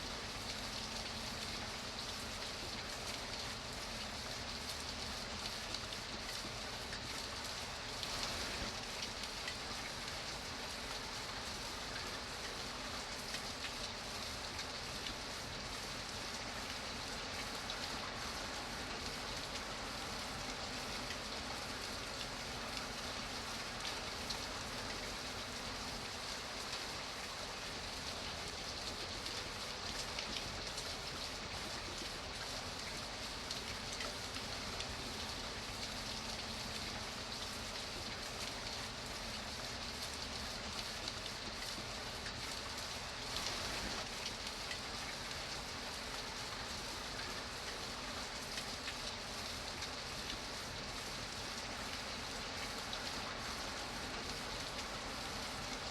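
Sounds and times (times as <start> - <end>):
rain pattering on a surface: 0.0 - 55.9.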